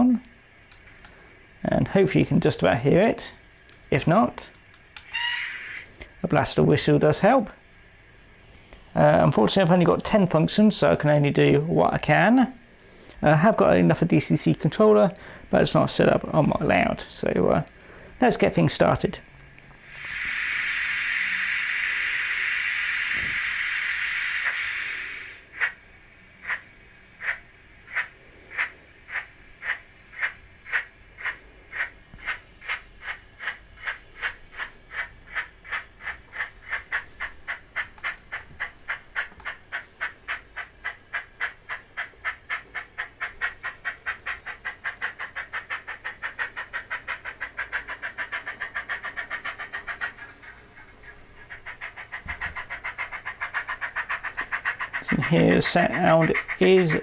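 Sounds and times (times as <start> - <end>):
steam locomotive exhaust chuffs: 0.0 - 57.0
hiss of steam: 19.8 - 29.6.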